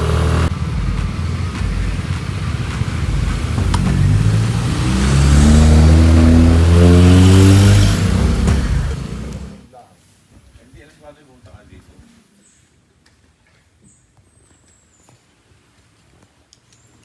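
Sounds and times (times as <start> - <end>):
road and wind noise: 0.0 - 9.7
vehicle engine accelerating: 0.0 - 9.7.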